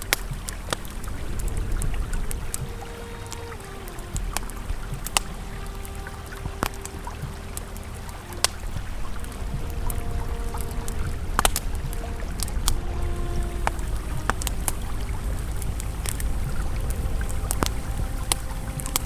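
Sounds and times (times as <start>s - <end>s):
ambient drone of held tones: 0.0s - 19.0s
campfire crackling: 0.0s - 19.0s
river flowing: 0.0s - 19.0s.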